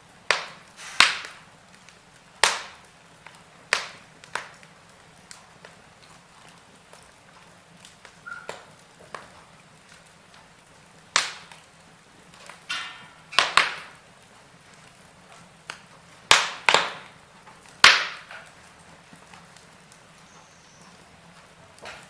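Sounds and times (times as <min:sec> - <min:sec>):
wood fire crackling: 0:00.0 - 0:22.0
short hiss from fire: 0:00.3 - 0:05.0.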